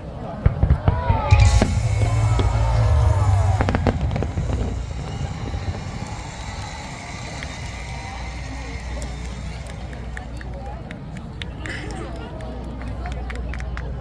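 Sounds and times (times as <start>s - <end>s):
fireworks booming: 0.5s - 10.7s
fireworks sharp bangs: 0.5s - 10.7s
fireworks crackling: 0.5s - 11.3s.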